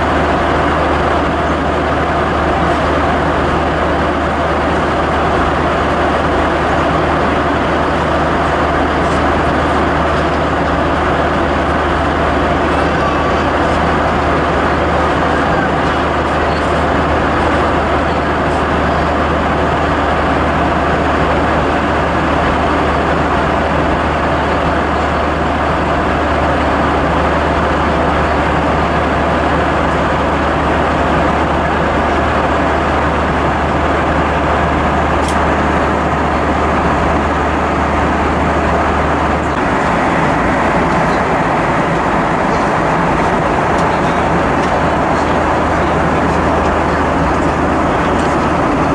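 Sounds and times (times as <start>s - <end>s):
aircraft cabin airflow and engine: 0.0s - 48.9s
low hum: 31.4s - 48.9s.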